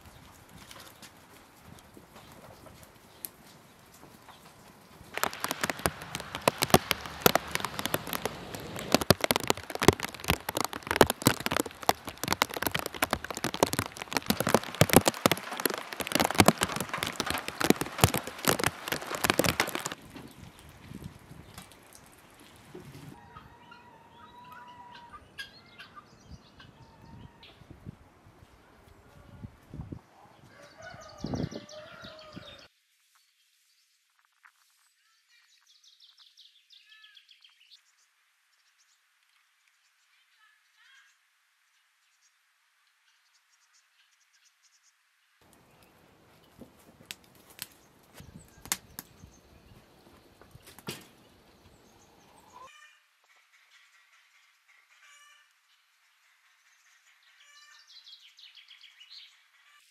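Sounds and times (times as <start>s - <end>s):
heavy rain on metal roof: 5.1s - 22.0s
chickens calling: 52.1s - 54.1s.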